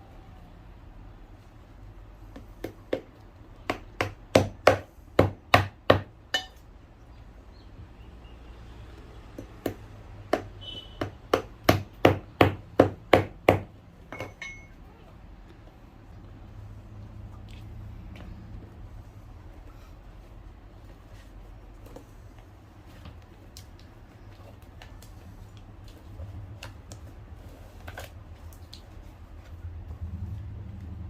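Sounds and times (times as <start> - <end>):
hammer striking shoe sole: 3.7 - 6.6.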